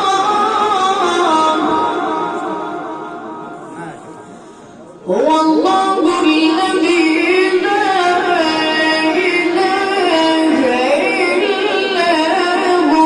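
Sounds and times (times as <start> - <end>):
child chanting melodic recitation: 5.0 - 13.0.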